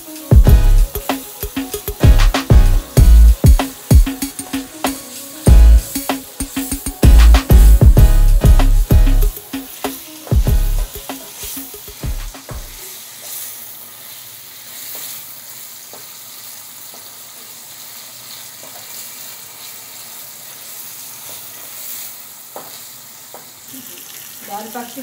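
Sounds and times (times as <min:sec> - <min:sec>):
background music: 0:00.0 - 0:12.8
vegetables sizzling in hot oil: 0:00.0 - 0:25.0.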